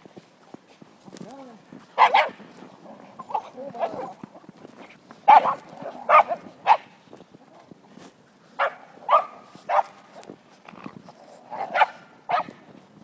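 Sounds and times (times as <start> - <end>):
dog barking: 2.0 - 2.4, 5.3 - 6.9, 8.6 - 10.0, 11.6 - 12.5.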